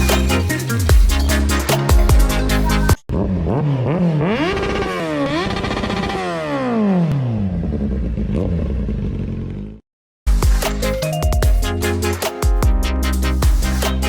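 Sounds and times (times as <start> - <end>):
motorcycle engine accelerating and slowing: 3.0 - 9.8.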